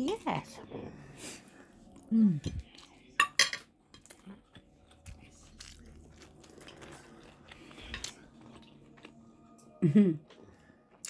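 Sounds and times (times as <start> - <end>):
chewing and biting shrimp: 4.0 - 9.3.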